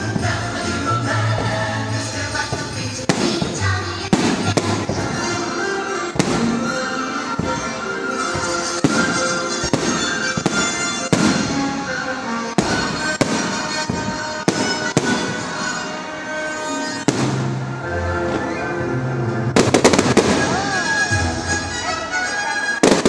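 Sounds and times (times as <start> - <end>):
music playing: 0.0 - 23.0.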